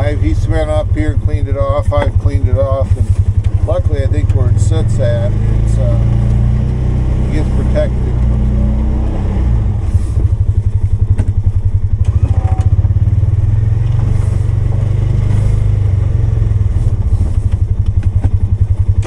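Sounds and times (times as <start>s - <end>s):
engine running with pulsing throb: 0.0s - 19.0s
knocks and clatters: 1.8s - 4.4s, 10.1s - 12.8s, 16.7s - 19.0s.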